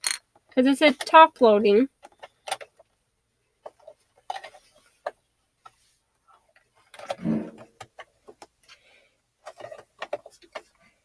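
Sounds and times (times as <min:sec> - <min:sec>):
small plastic clicks and taps: 0:02.0 - 0:02.9
short vocal sound: 0:07.2 - 0:07.7.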